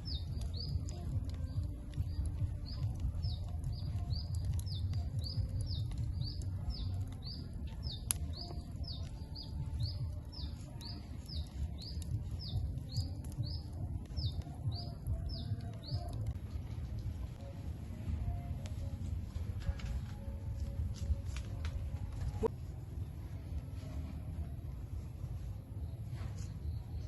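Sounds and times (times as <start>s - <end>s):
small bird chirping: 0.0s - 16.3s
steady low rumble: 0.0s - 27.0s.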